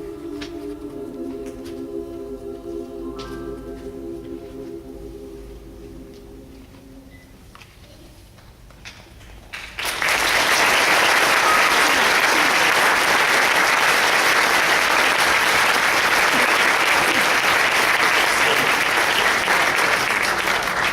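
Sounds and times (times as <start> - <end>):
audience applause: 9.5 - 20.9.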